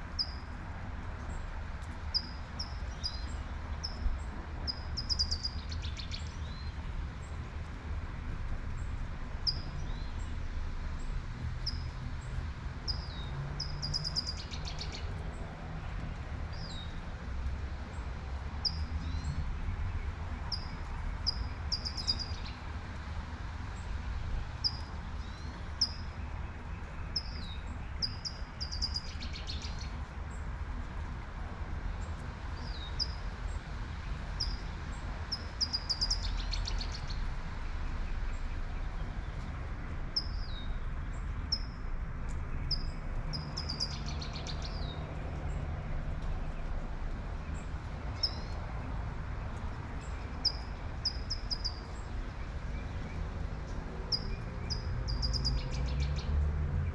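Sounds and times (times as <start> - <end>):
gentle rain hiss: 0.0 - 54.6
low city rumble: 0.0 - 56.9
small birds chirping: 4.7 - 6.8, 12.9 - 15.2, 18.6 - 22.6, 24.6 - 30.4, 32.1 - 34.7, 35.3 - 37.2, 42.3 - 45.6, 47.4 - 48.6, 49.4 - 56.4.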